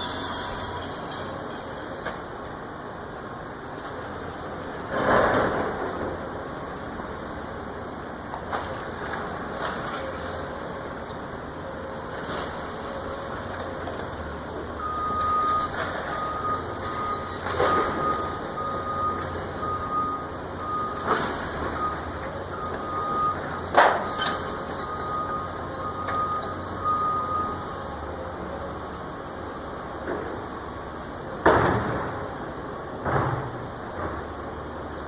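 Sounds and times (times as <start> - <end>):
heavy machine engine running: 0.0 - 35.0
reversing alarm beeping: 14.8 - 28.0.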